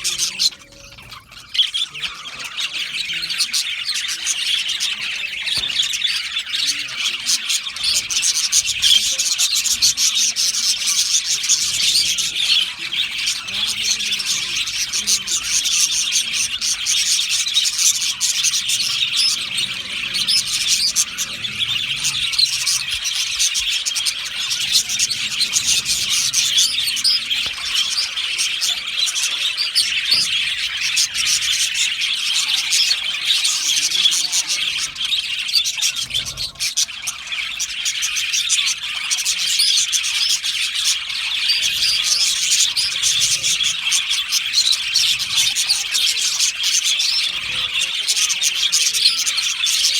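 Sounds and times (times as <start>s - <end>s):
budgerigars chattering and chirping: 0.0s - 49.9s.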